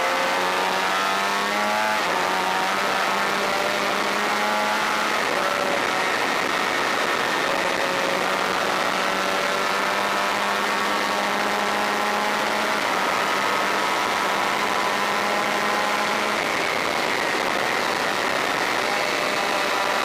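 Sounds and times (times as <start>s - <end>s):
motorcycle engine at high revs: 0.0s - 20.0s
heavy wind noise: 4.9s - 9.3s.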